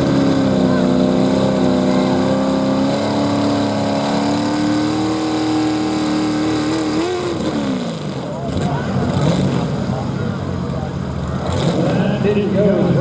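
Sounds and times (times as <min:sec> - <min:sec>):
truck engine running at high revs: 0:00.0 - 0:13.0.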